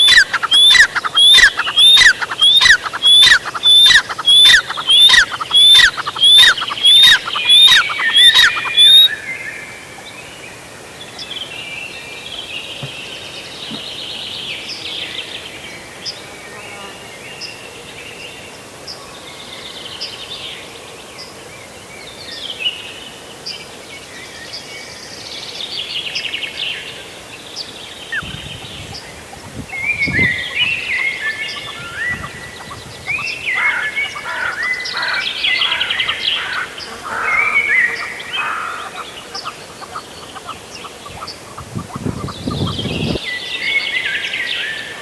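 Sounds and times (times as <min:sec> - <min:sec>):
birds chirping: 0:00.0 - 0:16.2, 0:27.5 - 0:45.0.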